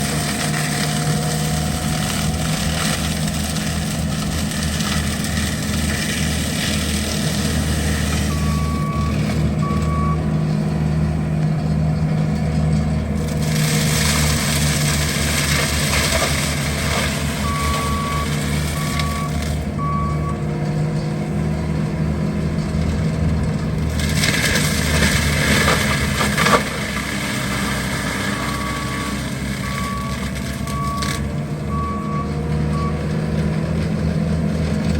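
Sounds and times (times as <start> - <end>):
skid steer engine running: 0.0 - 34.9
reversing alarm beeps: 8.2 - 10.2, 17.4 - 20.4, 28.4 - 31.1, 31.7 - 33.0.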